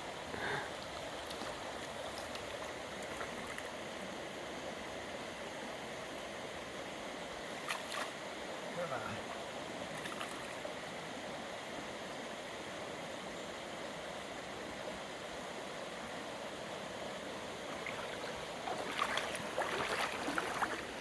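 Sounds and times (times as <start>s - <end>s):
stream running over stones: 0.8s - 11.1s, 16.0s - 21.0s.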